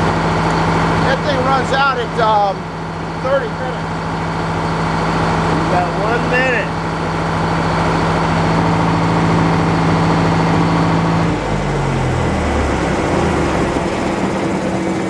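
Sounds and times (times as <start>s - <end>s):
sawmill engine running: 0.0s - 15.0s.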